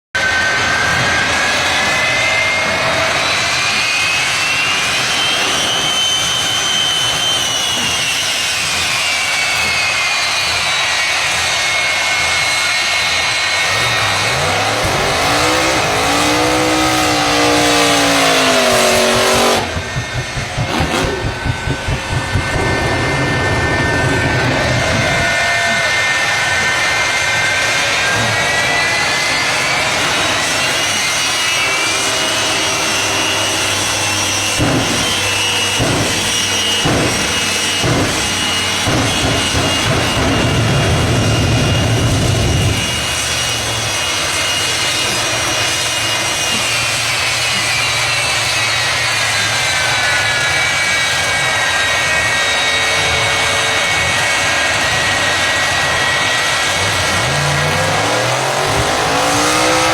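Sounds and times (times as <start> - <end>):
jet engines whining: 0.2 - 59.9
deep rumble: 14.3 - 27.3, 51.8 - 59.9
sharp pops: 14.8 - 24.1.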